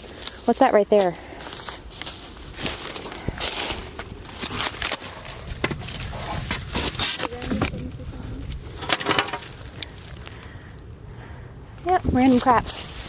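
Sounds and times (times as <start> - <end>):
footsteps crunching on debris: 0.0 - 10.9, 12.3 - 13.0.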